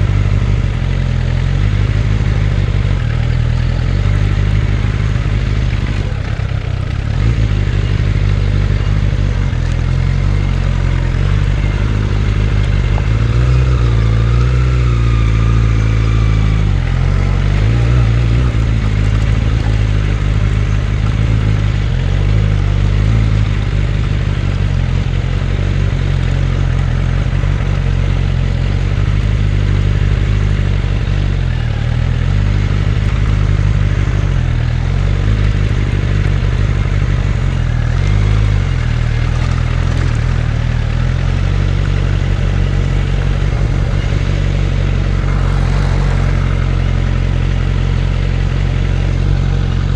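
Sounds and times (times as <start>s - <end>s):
motorcycle engine running: 0.0s - 49.9s
rushing noise: 42.4s - 49.9s.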